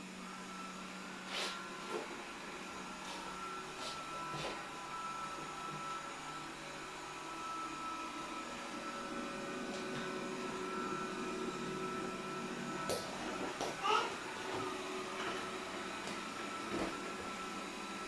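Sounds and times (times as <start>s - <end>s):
robot vacuum cleaner whirring: 0.0s - 18.0s.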